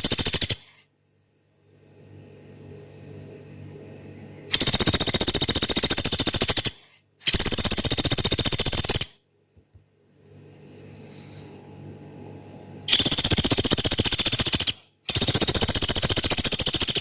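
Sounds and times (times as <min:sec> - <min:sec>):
woodpecker harsh rapid trills: 0:00.0 - 0:00.8, 0:04.5 - 0:09.2, 0:12.9 - 0:17.0.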